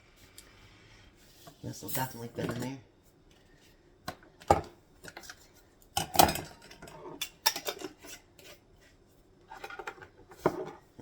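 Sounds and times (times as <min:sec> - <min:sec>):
utensils and dishes clinking: 0:06.0 - 0:08.3.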